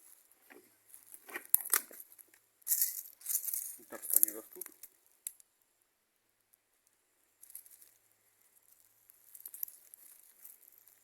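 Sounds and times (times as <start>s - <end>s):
leaves rustling and crackling: 8.7s - 11.0s.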